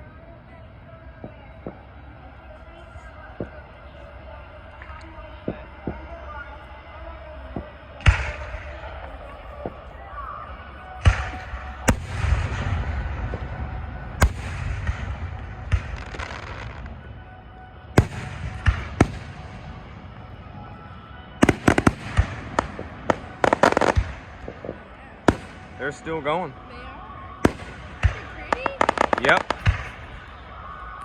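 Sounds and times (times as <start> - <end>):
firework bangs with echo: 11.0 - 17.0, 18.0 - 19.8, 21.4 - 25.8, 27.4 - 30.4.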